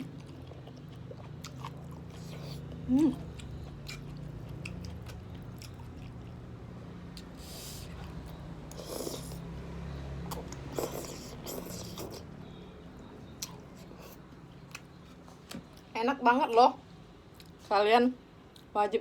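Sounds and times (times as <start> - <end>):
noodles being chewed: 0.0 - 9.5, 10.1 - 12.3, 13.3 - 15.9.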